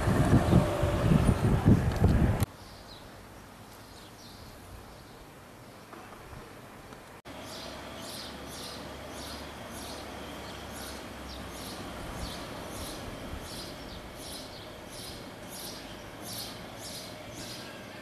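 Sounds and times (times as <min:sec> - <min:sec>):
small birds chirping: 0:02.5 - 0:05.9, 0:07.3 - 0:18.0.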